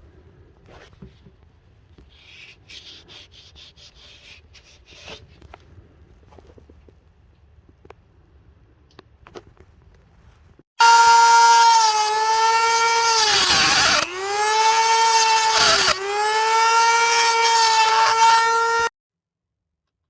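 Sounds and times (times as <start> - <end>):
power grinder whining on steel: 10.8 - 18.9.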